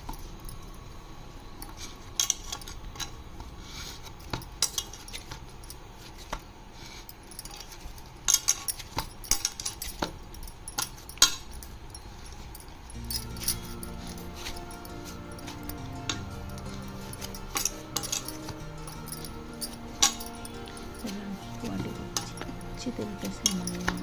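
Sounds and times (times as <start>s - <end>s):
music: 11.4s - 24.0s.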